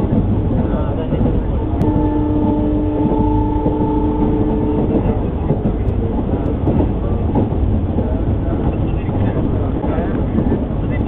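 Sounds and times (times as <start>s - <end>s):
train coach rumbling on rails: 0.0s - 11.0s
multi-tone train horn: 1.8s - 5.4s.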